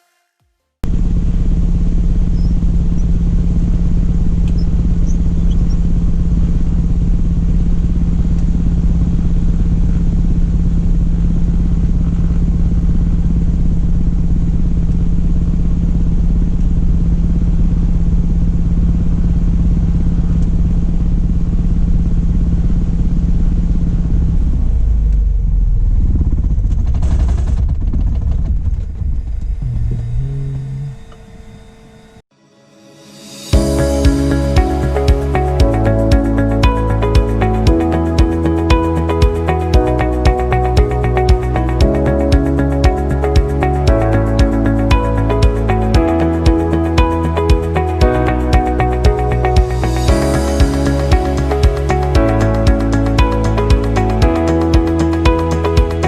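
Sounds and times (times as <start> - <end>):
airplane engine and propeller drone: 0.9 - 32.2.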